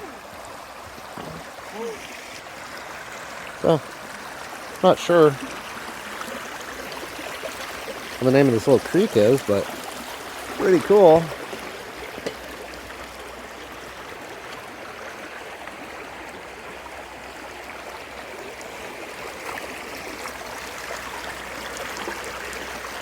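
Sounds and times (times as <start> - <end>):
creek babbling: 0.0 - 23.0.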